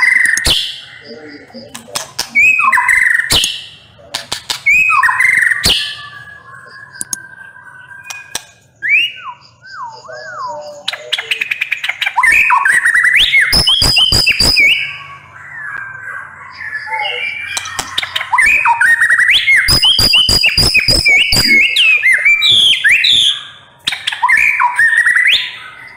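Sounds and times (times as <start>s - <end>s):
rapid clicking bird notes: 1.6s - 5.9s, 8.0s - 8.7s, 10.9s - 14.8s, 17.4s - 22.4s
bird singing whistled phrases: 2.3s - 3.8s, 4.7s - 25.9s.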